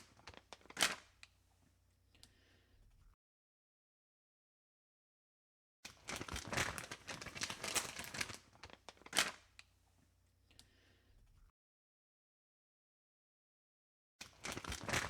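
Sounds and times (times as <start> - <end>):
crinkling and rustling handling: 0.0 - 1.3, 5.9 - 9.7, 14.2 - 15.0.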